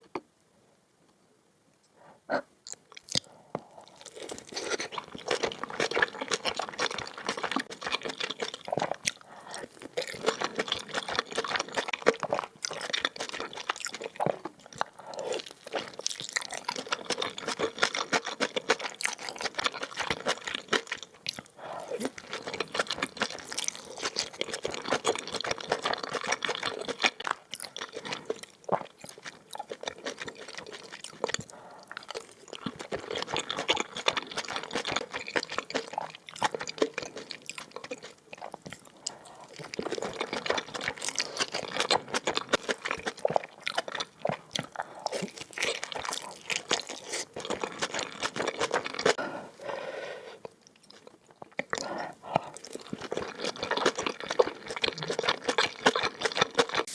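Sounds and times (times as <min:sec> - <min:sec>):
chewing with wet smacks and crunches: 0:02.6 - 0:49.2, 0:50.4 - 0:56.9.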